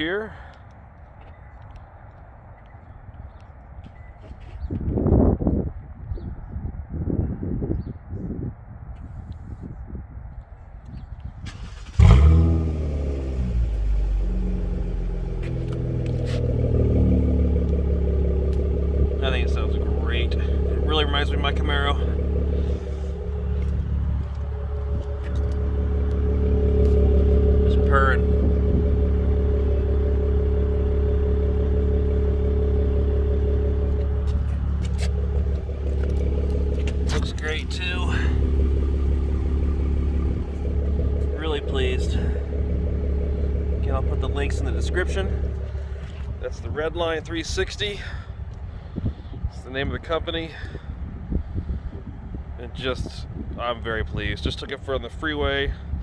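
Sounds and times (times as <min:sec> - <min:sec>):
car engine starting and idling: 0:11.2 - 0:56.0.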